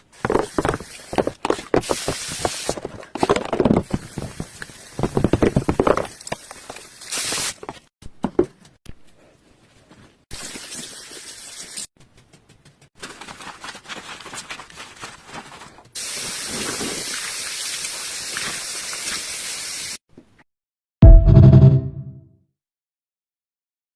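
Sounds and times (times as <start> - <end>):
loud music: 21.0 - 22.1.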